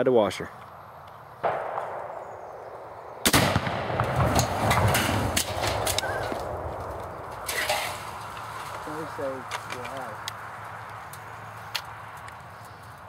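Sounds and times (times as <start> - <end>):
scattered cracks: 1.0 - 13.0
rifle shot: 1.4 - 6.9
exploding target blast rumbling: 1.4 - 8.0.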